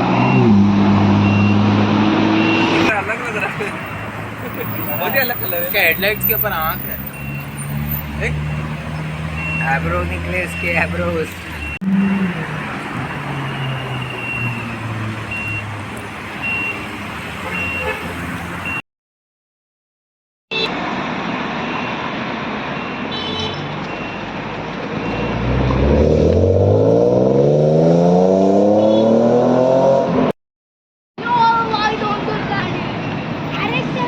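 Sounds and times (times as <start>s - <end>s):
street traffic: 0.0s - 18.8s, 20.5s - 30.4s, 31.2s - 34.0s
high electronic beep: 1.2s - 3.0s, 3.8s - 8.8s, 9.4s - 9.8s
car engine accelerating hard: 25.0s - 30.3s.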